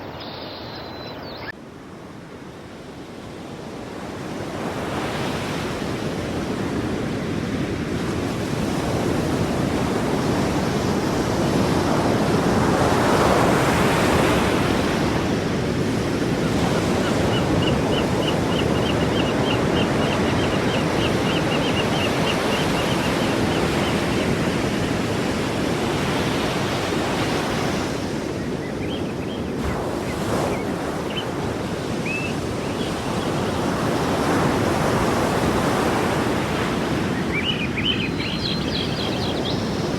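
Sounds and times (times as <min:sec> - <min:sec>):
sea waves on shore: 0:00.0 - 0:39.9.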